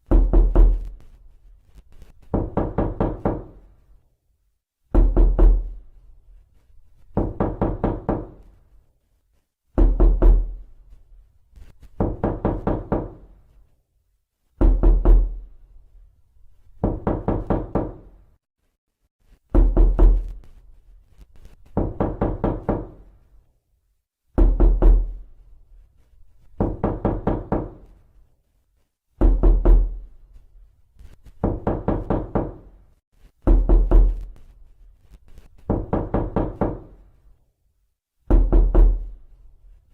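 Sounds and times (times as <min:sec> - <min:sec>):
knocking on a door: 0:00.0 - 0:00.9, 0:02.3 - 0:03.6, 0:04.9 - 0:05.8, 0:07.1 - 0:08.5, 0:09.8 - 0:10.6, 0:12.0 - 0:13.3, 0:14.6 - 0:15.4, 0:16.8 - 0:18.1, 0:19.5 - 0:20.4, 0:21.7 - 0:23.1, 0:24.4 - 0:25.2, 0:26.6 - 0:28.0, 0:29.2 - 0:30.0, 0:31.4 - 0:32.8, 0:33.4 - 0:34.3, 0:35.6 - 0:37.0, 0:38.2 - 0:39.1.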